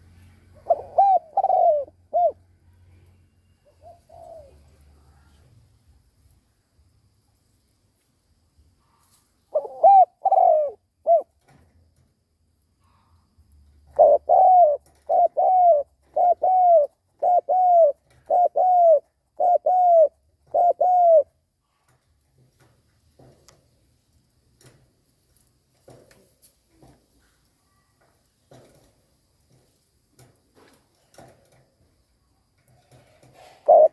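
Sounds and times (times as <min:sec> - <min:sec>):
dove cooing: 0:00.5 - 0:02.5, 0:03.6 - 0:05.4, 0:09.5 - 0:11.4, 0:13.9 - 0:21.4, 0:32.8 - 0:33.9.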